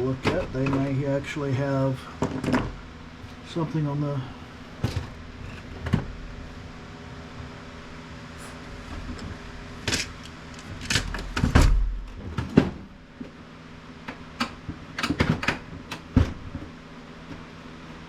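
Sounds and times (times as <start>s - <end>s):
steady low hum: 0.0s - 18.0s
plastic parts knocking and clacking: 14.4s - 16.6s.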